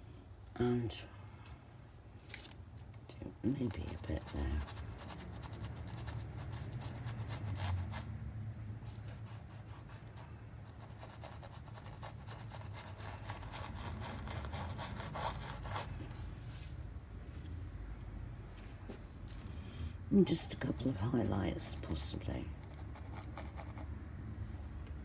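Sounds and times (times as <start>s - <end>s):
paintbrush scratchy strokes: 3.7s - 8.1s, 8.8s - 16.7s.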